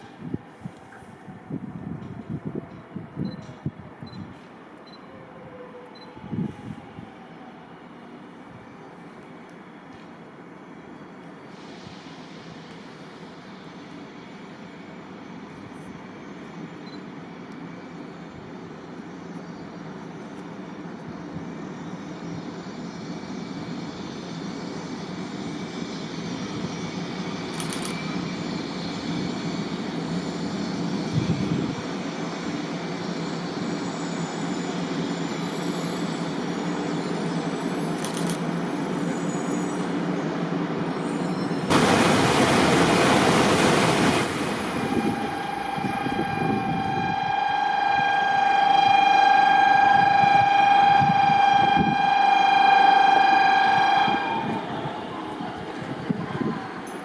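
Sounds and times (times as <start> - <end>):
train running noise: 8.1 - 57.0
loud rush of noise: 41.7 - 47.4
steady tone: 44.3 - 54.3.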